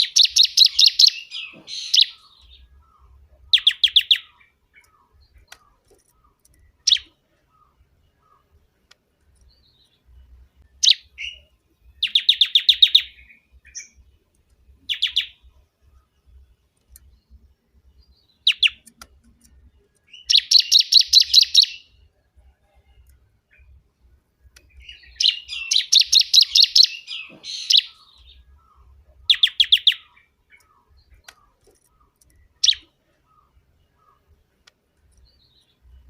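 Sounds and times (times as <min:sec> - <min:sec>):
bird chirping and trilling: 0:00.0 - 0:08.8, 0:09.4 - 0:14.2, 0:14.8 - 0:22.1, 0:24.6 - 0:36.0.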